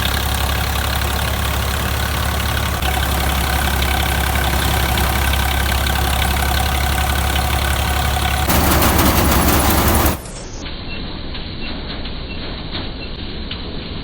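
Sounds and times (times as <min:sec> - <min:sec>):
tractor engine running: 0:00.0 - 0:10.6.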